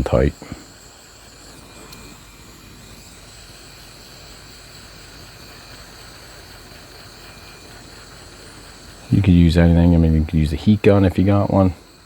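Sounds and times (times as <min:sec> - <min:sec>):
hot-air blower running: 0:00.0 - 0:12.0.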